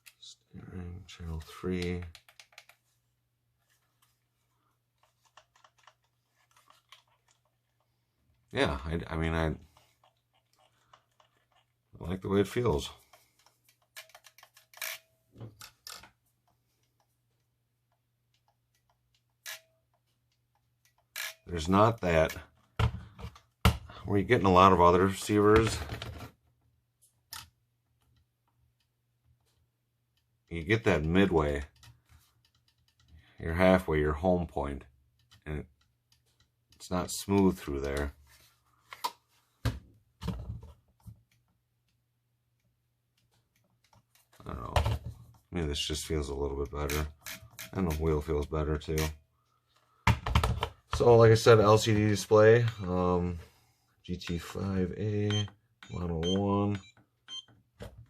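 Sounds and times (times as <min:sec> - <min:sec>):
plastic clicks and knocks: 0:50.0 - 0:51.0.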